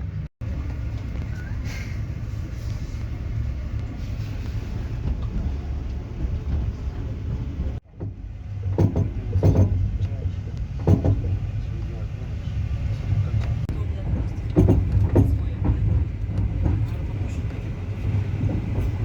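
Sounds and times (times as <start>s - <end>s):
train wheels rumbling on rails: 0.0s - 19.0s
loud knocks: 8.0s - 9.9s, 10.8s - 11.4s, 14.5s - 15.9s.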